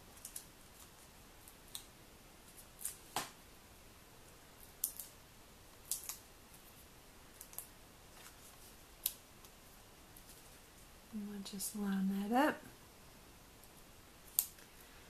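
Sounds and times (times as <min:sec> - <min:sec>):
crisp paper clicks and snips: 0:00.1 - 0:01.9, 0:04.6 - 0:06.6, 0:07.3 - 0:09.6, 0:14.2 - 0:14.8.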